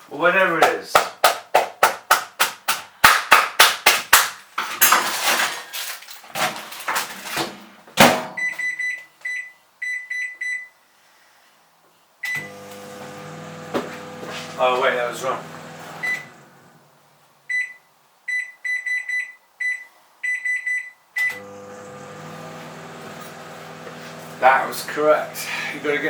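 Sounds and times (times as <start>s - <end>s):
keypad beeps: 8.4s - 10.7s, 17.5s - 21.4s
microwave oven humming: 12.4s - 16.8s, 21.3s - 26.0s.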